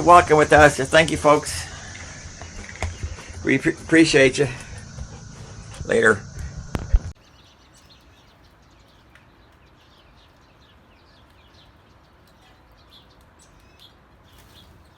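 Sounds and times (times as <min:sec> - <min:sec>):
low background hum: 0:00.0 - 0:07.2
bird chirping: 0:00.0 - 0:14.9.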